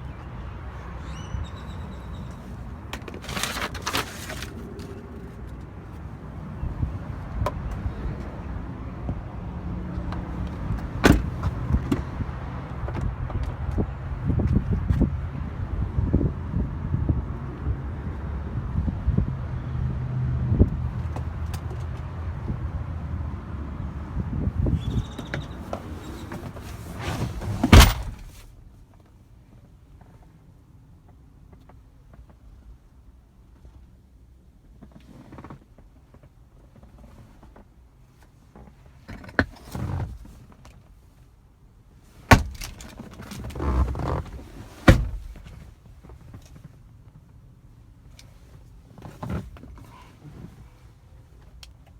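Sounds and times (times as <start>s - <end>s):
outdoor noise: 0.0s - 51.9s
truck door slamming: 10.6s - 12.1s, 24.9s - 28.5s, 42.3s - 43.0s, 43.6s - 45.6s.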